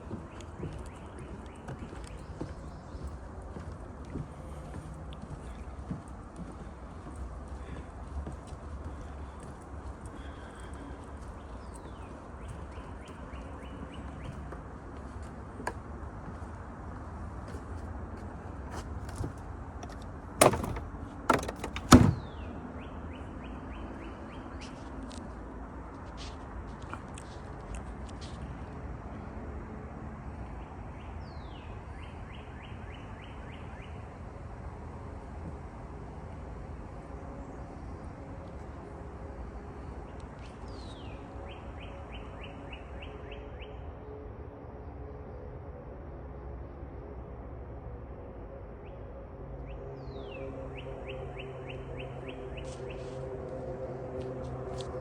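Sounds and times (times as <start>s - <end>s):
sharp knocks: 20.4s - 22.2s.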